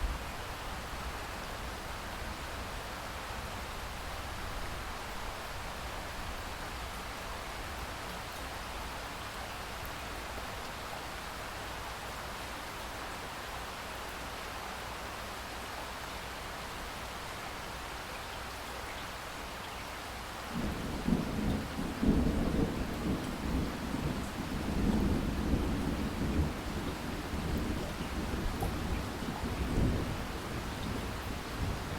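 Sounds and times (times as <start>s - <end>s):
rain falling: 0.0s - 31.9s
thunder rumbling: 20.6s - 31.9s.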